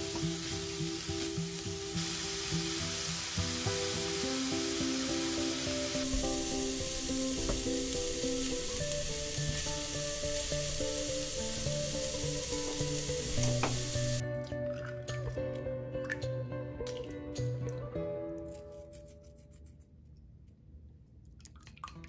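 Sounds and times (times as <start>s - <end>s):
food sizzling in a frying pan: 0.0s - 14.2s.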